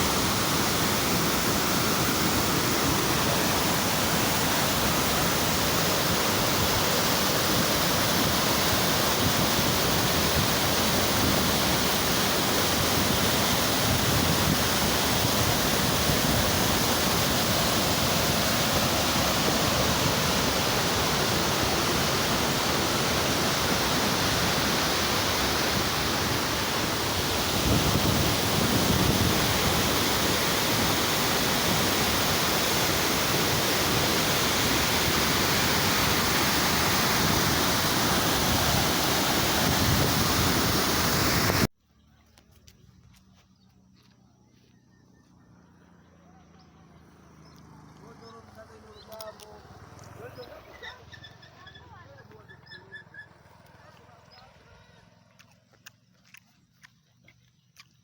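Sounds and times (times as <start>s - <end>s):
waterfall rushing: 0.0s - 41.7s.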